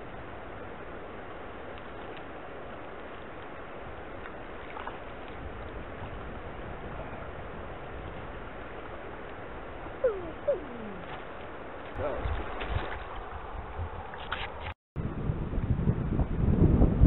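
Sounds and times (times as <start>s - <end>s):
flowing river water: 0.0s - 14.8s
animal calls falling in pitch: 10.0s - 11.3s.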